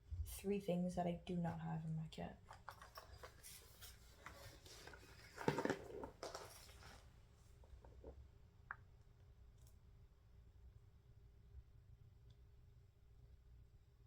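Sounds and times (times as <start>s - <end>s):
rustling and clattering: 2.4s - 8.2s.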